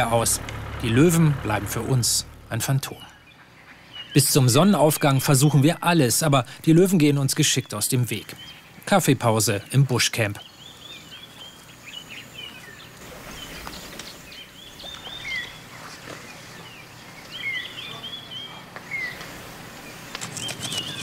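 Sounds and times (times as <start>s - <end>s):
faint outdoor background noise: 0.0s - 21.0s
high bird chirps: 10.4s - 15.8s.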